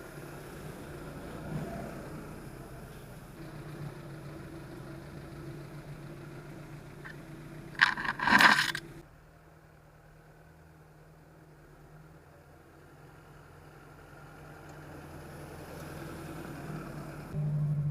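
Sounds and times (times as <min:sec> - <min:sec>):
engine humming: 0:00.0 - 0:17.9
loud scraping clatter: 0:07.8 - 0:09.0.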